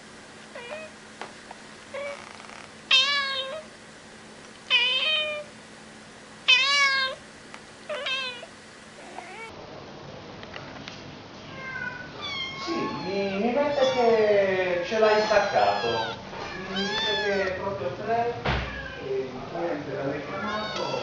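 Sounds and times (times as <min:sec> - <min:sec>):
kitten meowing: 0:00.6 - 0:00.9, 0:02.0 - 0:03.7, 0:04.7 - 0:05.5, 0:06.5 - 0:07.2, 0:07.9 - 0:09.5, 0:11.6 - 0:14.2, 0:15.0 - 0:17.6, 0:20.3 - 0:21.0.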